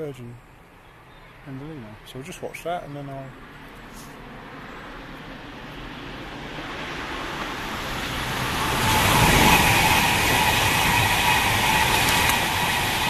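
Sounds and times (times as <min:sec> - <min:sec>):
train rushing past: 0:04.2 - 0:13.0
high whine: 0:04.9 - 0:13.0.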